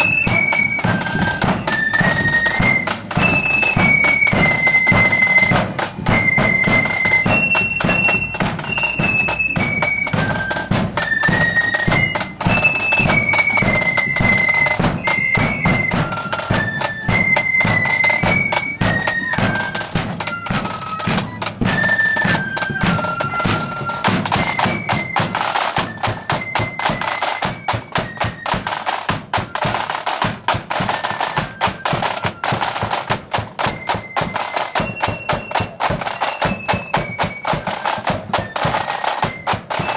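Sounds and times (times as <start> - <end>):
flutes playing melody: 0.0 - 39.9
snare and bass drums beat: 0.0 - 39.9.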